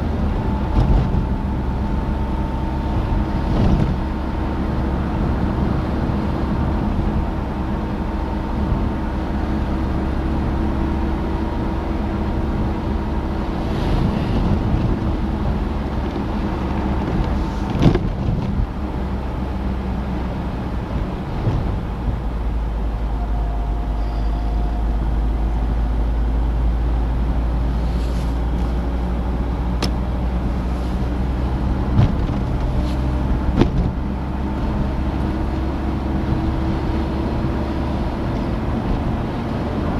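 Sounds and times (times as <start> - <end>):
car engine running: 0.0 - 39.9
low road rumble: 0.0 - 39.9
car knocking over bumps: 15.6 - 18.7, 31.8 - 34.1.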